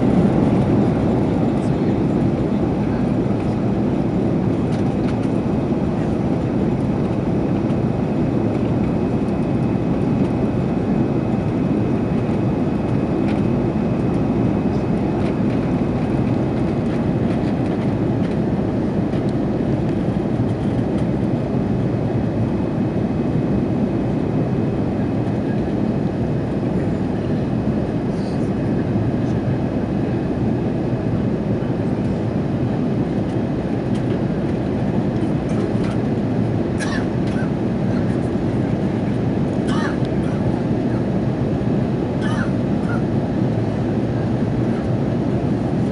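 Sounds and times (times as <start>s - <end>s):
airliner cabin engine and airflow rush: 0.0s - 45.9s.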